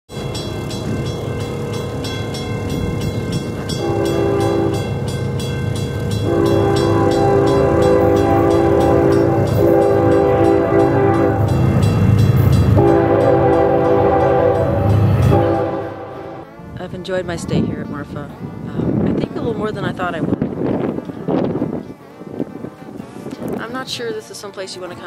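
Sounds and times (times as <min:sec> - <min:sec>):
passing train rumble: 0:00.1 - 0:25.0
locomotive air horn blasts: 0:03.7 - 0:05.0, 0:06.2 - 0:11.7, 0:12.7 - 0:16.8, 0:21.6 - 0:23.3.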